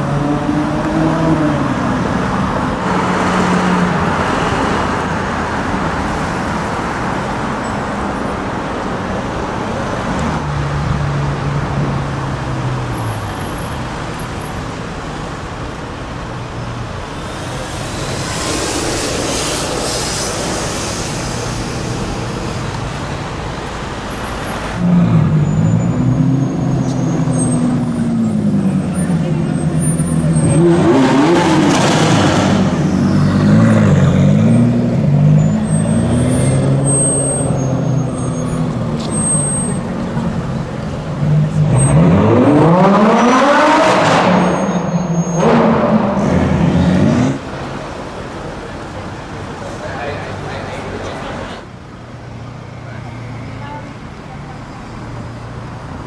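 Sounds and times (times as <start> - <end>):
road noise: 0.0 - 56.0
car engine revving: 16.4 - 23.6, 40.0 - 44.8
loud car engine rising in pitch: 16.7 - 23.3, 24.4 - 47.5.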